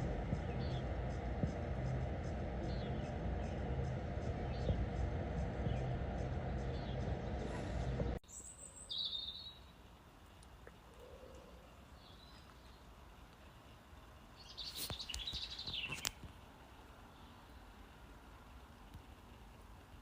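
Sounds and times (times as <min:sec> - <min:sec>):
loud steady noise: 0:00.0 - 0:08.2
bird singing: 0:00.0 - 0:16.1.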